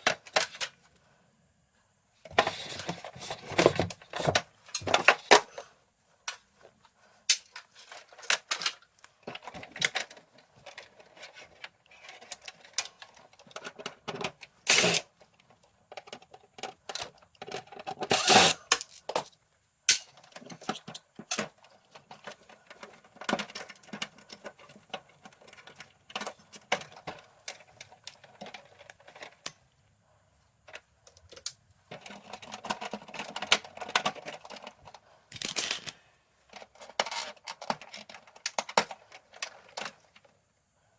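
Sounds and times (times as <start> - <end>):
plastic and metal parts rattling: 0.0 - 0.9, 2.2 - 6.5, 7.3 - 29.6, 30.6 - 40.4.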